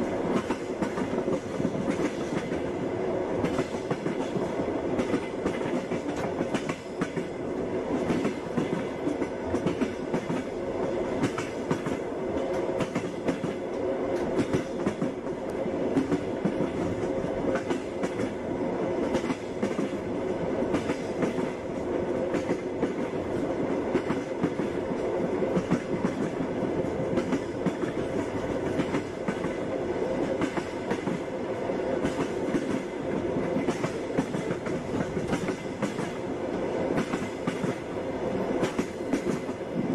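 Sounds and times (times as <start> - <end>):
train rumbling on rails: 0.0 - 39.9.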